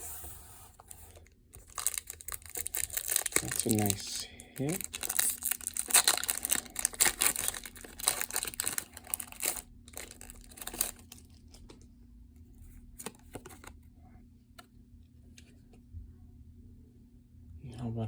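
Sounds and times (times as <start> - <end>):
plastic packaging rustling: 0.8 - 11.8
foil wrapper crinkling: 1.1 - 11.8.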